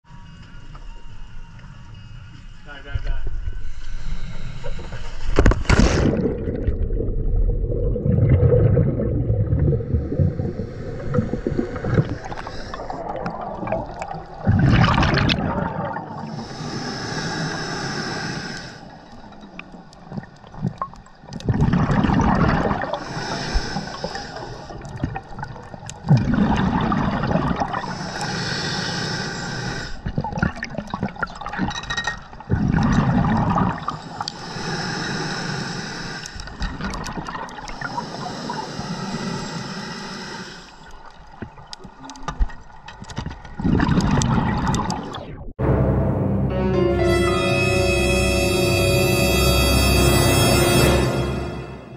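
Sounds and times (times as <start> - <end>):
regulator inhale hiss: 3.4 - 5.6, 9.9 - 13.0, 16.3 - 19.2, 23.0 - 24.9, 27.8 - 30.1, 34.0 - 36.6, 37.7 - 41.0
exhaled bubbles rumbling: 5.4 - 16.5, 19.3 - 23.1, 24.6 - 28.0, 30.0 - 34.2, 41.3 - 45.6.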